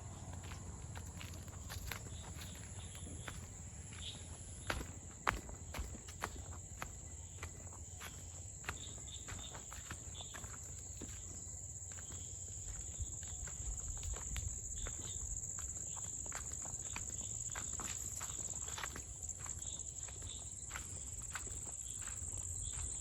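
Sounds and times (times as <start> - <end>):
footsteps crunching on path: 0.0 - 23.0
insects droning: 0.0 - 23.0.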